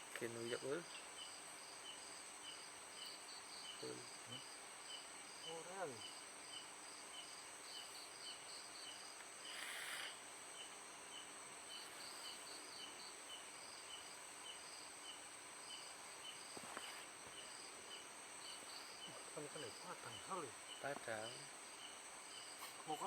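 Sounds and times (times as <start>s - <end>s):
crickets chirping: 0.0s - 23.0s
burst of hiss: 9.2s - 10.4s.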